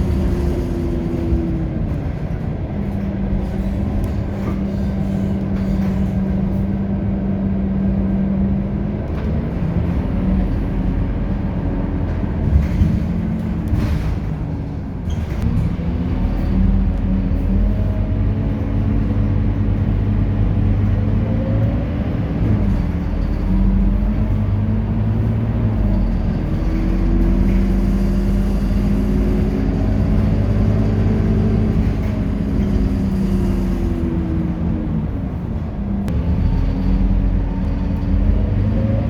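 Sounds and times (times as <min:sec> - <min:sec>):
bus diesel engine running: 0:00.0 - 0:39.0.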